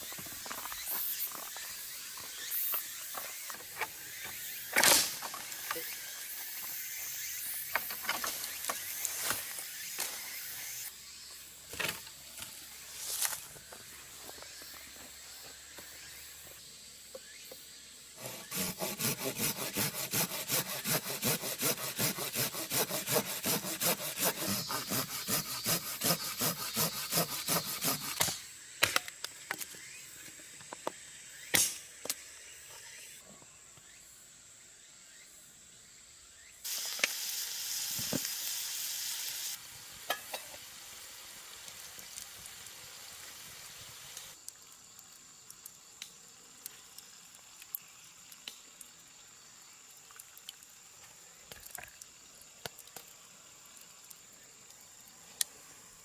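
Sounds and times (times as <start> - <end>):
hand saw cutting wood: 18.2 - 28.4
steady hiss: 33.8 - 56.0.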